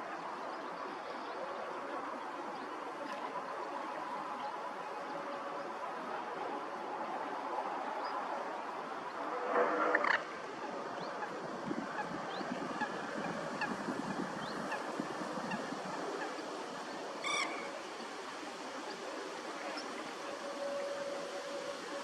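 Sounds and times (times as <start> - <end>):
steady background hiss: 0.0 - 22.0
water bird honking: 8.2 - 22.0.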